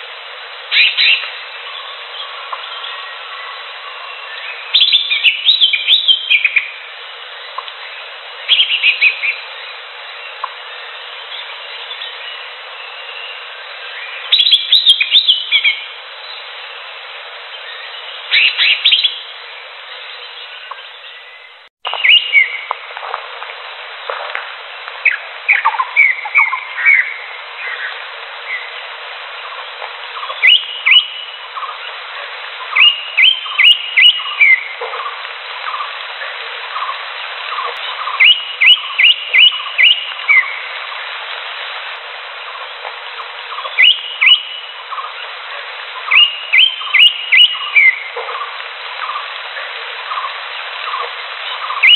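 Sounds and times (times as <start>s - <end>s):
steady hiss: 0.0s - 51.9s
birds whistling rising notes: 0.7s - 6.8s, 17.5s - 19.3s, 19.9s - 22.7s, 30.2s - 31.7s, 32.7s - 34.7s, 37.8s - 40.7s, 43.5s - 45.0s, 46.1s - 48.1s.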